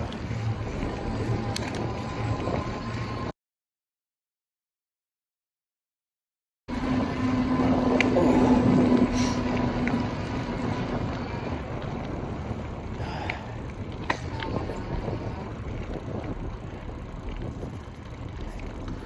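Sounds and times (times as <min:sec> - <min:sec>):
sharp clicks from bike: 0:00.0 - 0:03.1, 0:09.0 - 0:19.0
bike tyre rumble: 0:00.0 - 0:03.3, 0:06.7 - 0:19.0
wind buffeting microphone: 0:00.0 - 0:03.3, 0:06.7 - 0:19.0
steady hum: 0:06.7 - 0:17.2.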